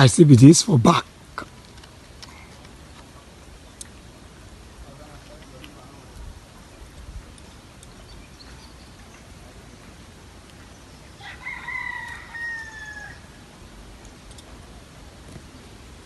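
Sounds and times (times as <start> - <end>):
rooster crowing: 11.2 - 13.6.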